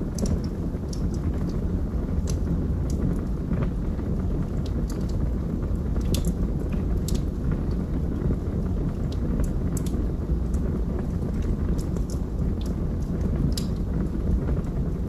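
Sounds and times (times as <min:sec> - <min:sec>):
burning logs crackling and popping: 0:00.0 - 0:15.0
low rumble of flames: 0:00.0 - 0:15.0.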